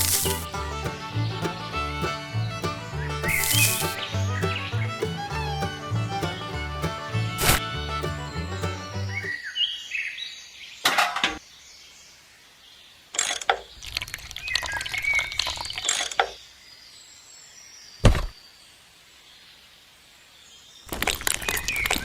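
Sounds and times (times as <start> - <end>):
rustling bursts: 0.0 - 0.5, 3.3 - 4.0, 7.4 - 7.6
music track: 0.0 - 9.4
birds chirping: 0.0 - 10.9
sharp thump: 18.0 - 18.4.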